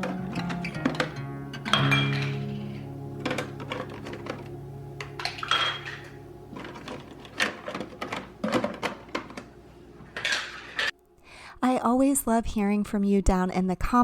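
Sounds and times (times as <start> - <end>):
dishes clinking and knocking: 0.0 - 9.5, 10.1 - 10.9
acoustic background music: 0.0 - 12.7.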